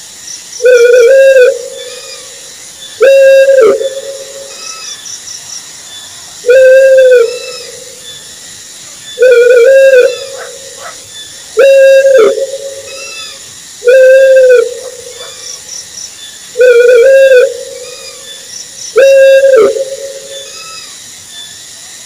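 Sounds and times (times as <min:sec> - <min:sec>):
owl hooting: 0:00.6 - 0:05.0, 0:06.4 - 0:08.0, 0:09.2 - 0:15.6, 0:16.5 - 0:21.0.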